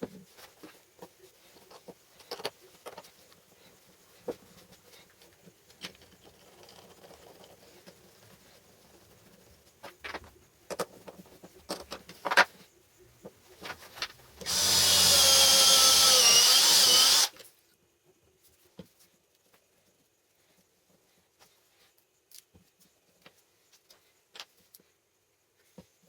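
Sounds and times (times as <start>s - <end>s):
power tool whining: 14.4s - 17.4s.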